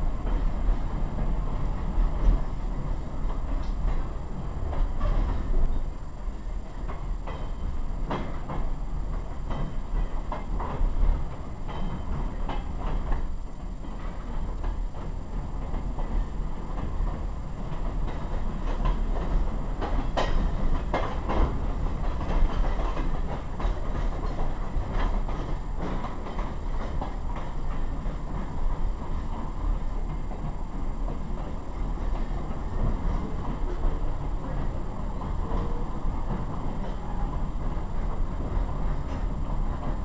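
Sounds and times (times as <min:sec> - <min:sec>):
wheels rumbling on rail: 0:00.0 - 0:40.0
track clicks and knocks: 0:19.8 - 0:28.9.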